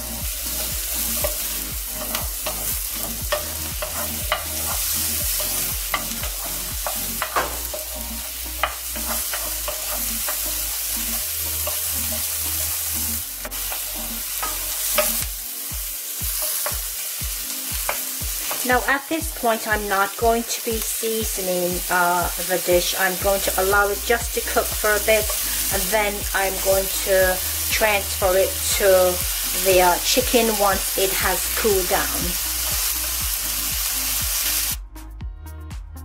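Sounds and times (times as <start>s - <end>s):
vegetables sizzling in a pan: 0.0s - 34.8s
wooden spoon scraping a pan: 0.5s - 15.2s.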